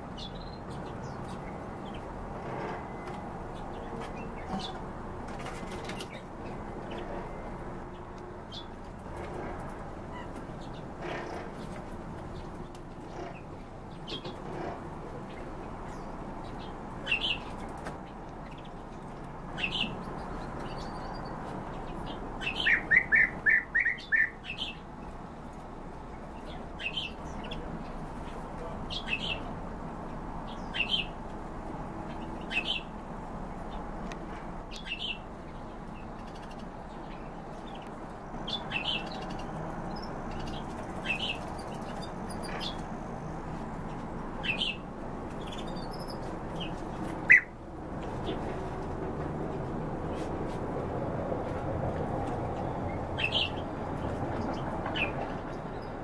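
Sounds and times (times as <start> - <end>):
cage birds chirping: 0.0 - 50.8, 51.5 - 56.0
steady background noise: 0.0 - 56.0.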